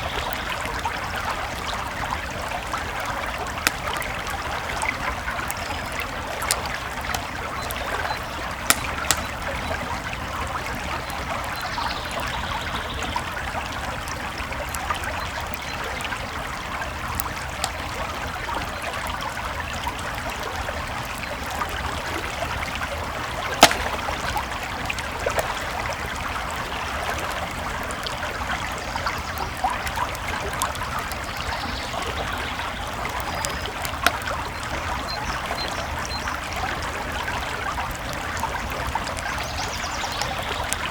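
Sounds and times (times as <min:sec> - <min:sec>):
creek water flowing: 0:00.0 - 0:40.9
campfire crackling and popping: 0:00.1 - 0:40.9.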